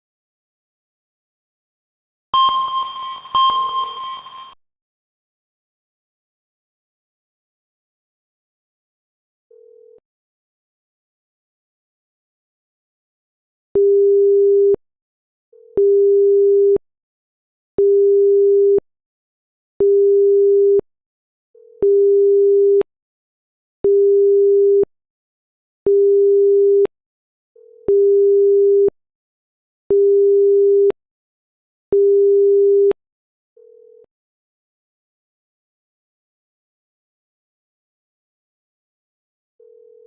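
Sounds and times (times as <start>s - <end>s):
electronic alert beeping: 2.4s - 4.6s.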